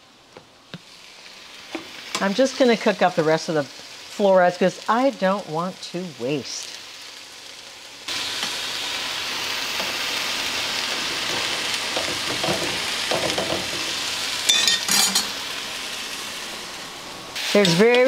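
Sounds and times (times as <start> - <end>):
mushrooms sizzling in a frying pan: 0.4 - 18.0
sharp clinks against a pan: 14.5 - 15.4.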